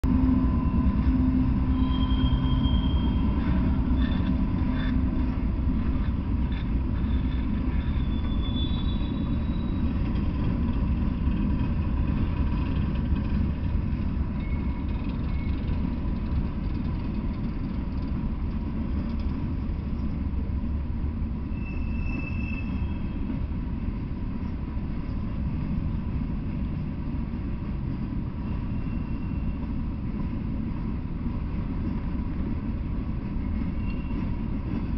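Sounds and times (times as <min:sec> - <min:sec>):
diesel locomotive passing: 0:00.0 - 0:34.9
heavy rumble of wheels on rail: 0:00.0 - 0:34.9
faint wheel squeals: 0:00.6 - 0:10.4, 0:14.2 - 0:18.1, 0:21.4 - 0:23.4, 0:28.4 - 0:29.8, 0:33.4 - 0:34.9.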